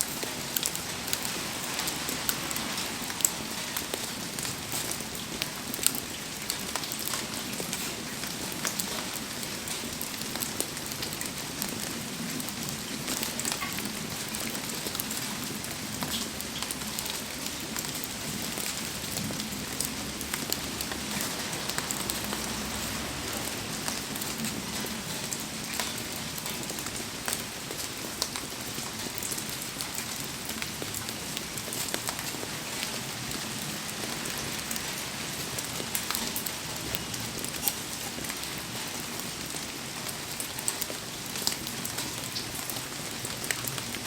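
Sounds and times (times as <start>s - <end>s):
campfire crackling: 0.0s - 24.9s
heavy rain falling: 0.0s - 44.0s
raindrop ticks and pops: 12.4s - 22.6s, 35.7s - 38.6s.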